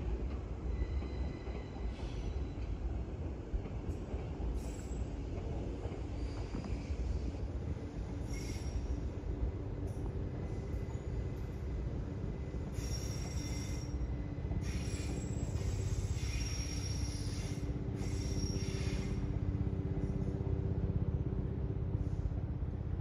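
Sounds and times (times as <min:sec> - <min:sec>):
distant train rumble and hum: 0:00.0 - 0:23.0
high wheel squeals: 0:12.7 - 0:19.3.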